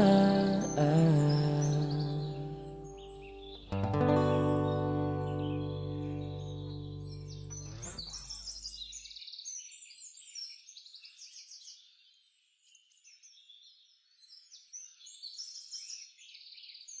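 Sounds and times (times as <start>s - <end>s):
music: 0.0s - 8.1s
songbirds chirping and trilling: 0.0s - 17.0s.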